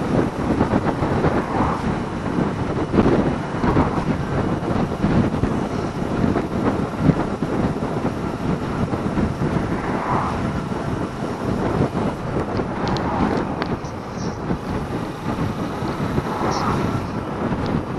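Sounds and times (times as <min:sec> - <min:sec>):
wind rushing over microphone: 0:00.0 - 0:17.9.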